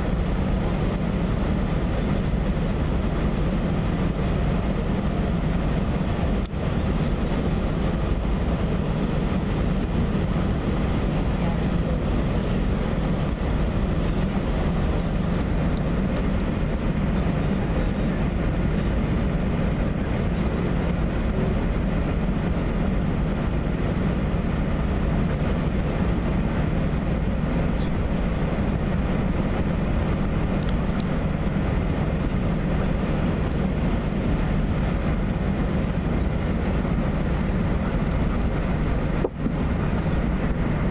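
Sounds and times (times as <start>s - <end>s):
jet engine rumble: 0.0s - 40.9s.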